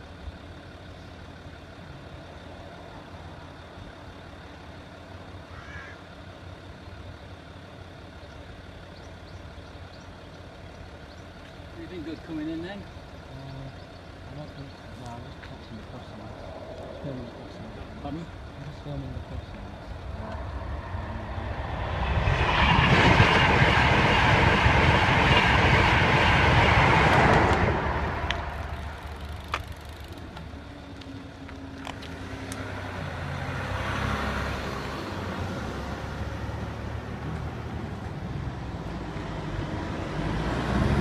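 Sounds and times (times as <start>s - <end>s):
road traffic rumble: 0.0s - 41.0s
train passing at speed: 18.9s - 30.1s, 32.7s - 41.0s.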